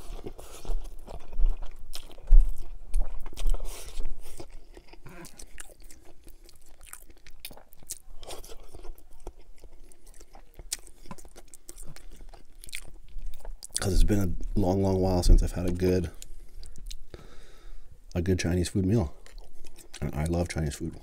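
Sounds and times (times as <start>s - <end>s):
chewing noodles: 0.0s - 13.9s, 19.1s - 20.2s.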